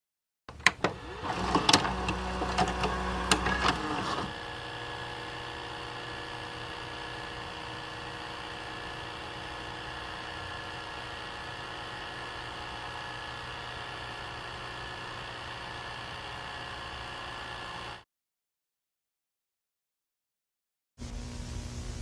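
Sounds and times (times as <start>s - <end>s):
small motor whirring: 0.9s - 18.0s
steady low hum with tones: 21.0s - 22.0s.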